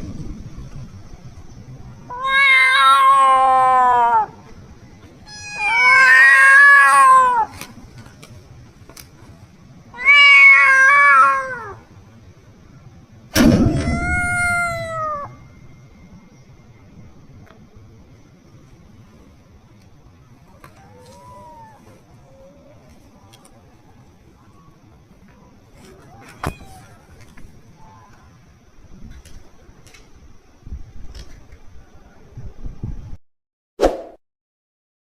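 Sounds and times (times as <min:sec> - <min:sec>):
kitten meowing: 0:05.2 - 0:07.6, 0:13.6 - 0:15.3, 0:20.6 - 0:22.0, 0:25.9 - 0:27.1.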